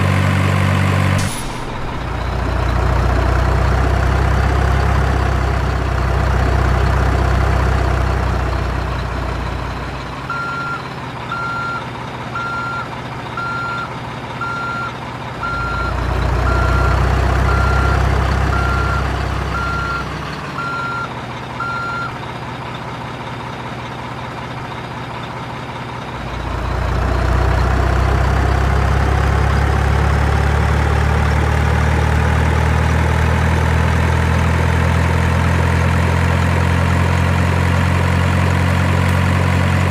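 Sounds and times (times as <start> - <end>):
dump truck engine running: 0.0 - 39.9
reversing beeps: 10.3 - 22.2.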